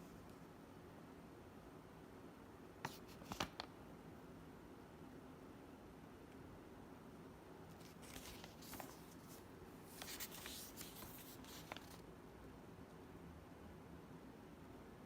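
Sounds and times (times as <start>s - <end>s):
faint rustling: 7.7s - 12.0s.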